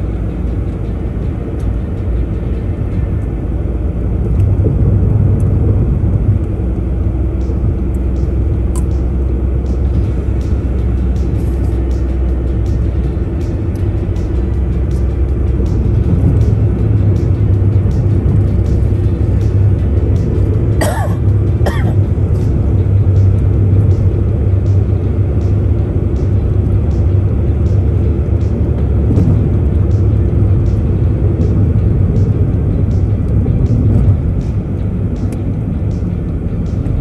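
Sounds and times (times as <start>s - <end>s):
car road and engine rumble: 0.0s - 37.0s
person coughing: 20.8s - 22.0s.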